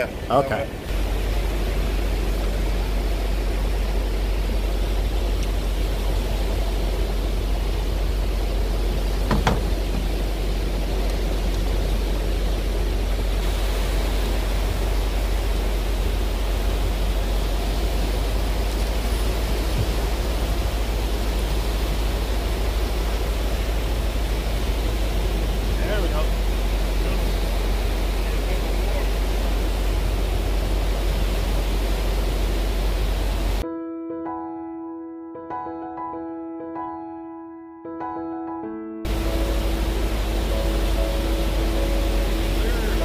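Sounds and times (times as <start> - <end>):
surf breaking on beach: 0.0 - 33.6, 39.1 - 43.0
short knock: 9.3 - 10.0.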